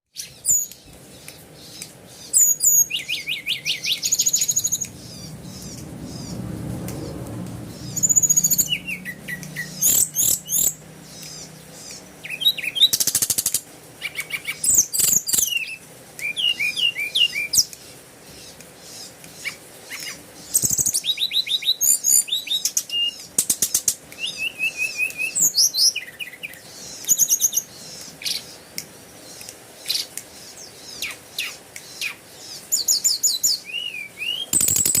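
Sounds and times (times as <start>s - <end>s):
small birds chirping and trilling: 0.1s - 35.0s
low rumble: 4.4s - 10.2s.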